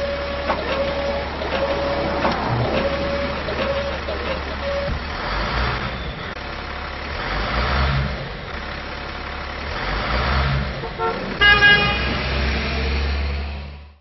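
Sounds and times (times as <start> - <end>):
truck engine rumbling: 0.0 - 14.0
truck horn blast: 10.8 - 12.5.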